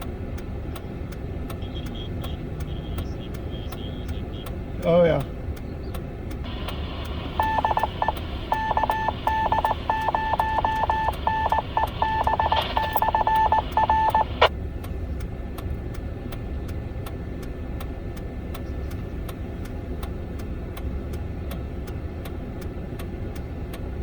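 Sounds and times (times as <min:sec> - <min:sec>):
faint regular ticks: 0:00.0 - 0:23.9
vehicle low rumble: 0:00.0 - 0:24.0
radio morse tone: 0:06.5 - 0:14.5.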